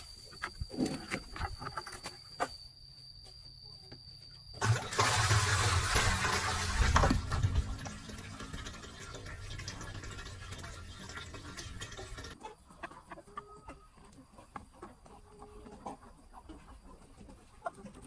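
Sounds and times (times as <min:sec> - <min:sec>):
chickens clucking softly: 0:12.3 - 0:18.0.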